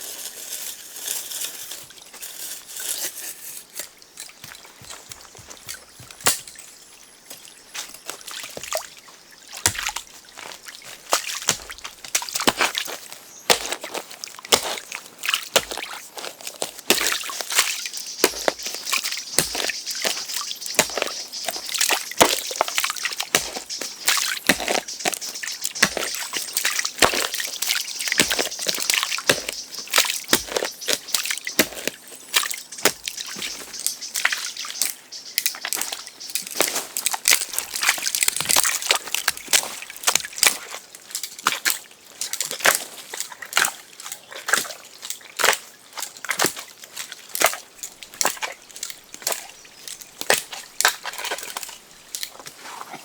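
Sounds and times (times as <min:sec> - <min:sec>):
wet sloshing and scraping: 0:46.2 - 0:53.0.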